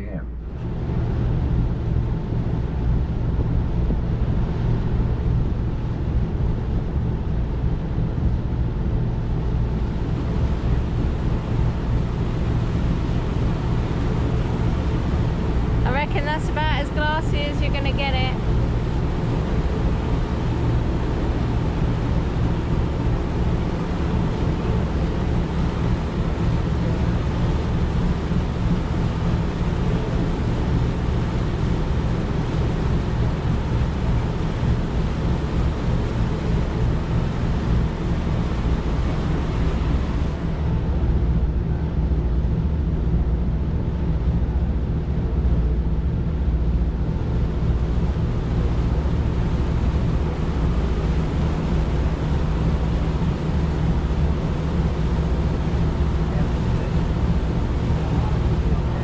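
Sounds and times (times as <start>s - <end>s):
boat engine low hum: 0.0s - 59.0s
hiss of wind and water: 0.5s - 59.0s.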